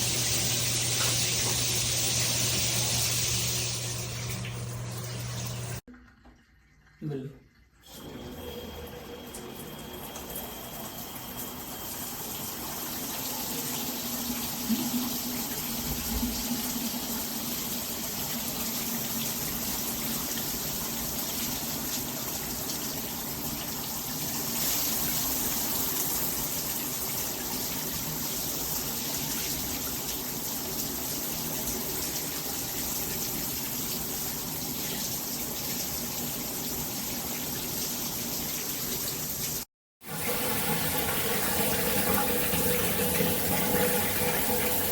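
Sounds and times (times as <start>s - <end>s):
shower head spraying water: 0.0s - 5.8s.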